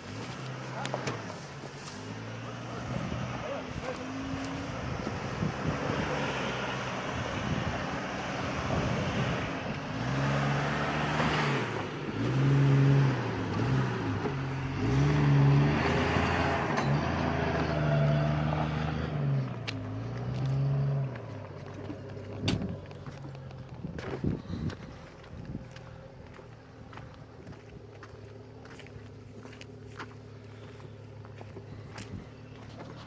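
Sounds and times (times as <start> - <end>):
car engine revving: 0.0 - 23.8.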